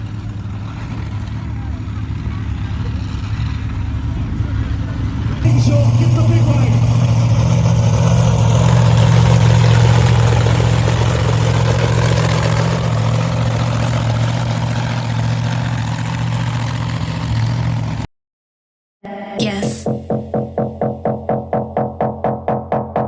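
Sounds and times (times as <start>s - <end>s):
truck engine idling: 0.0s - 18.1s.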